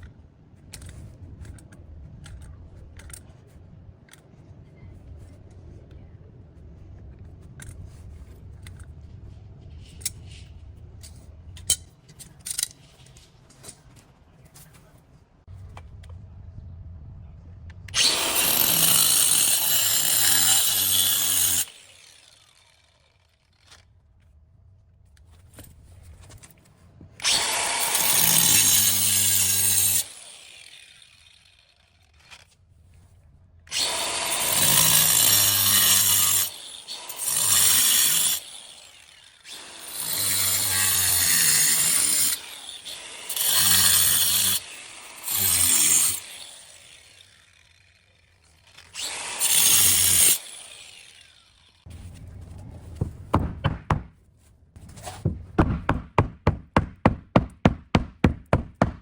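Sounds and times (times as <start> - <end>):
power tool running: 33.7 - 51.8.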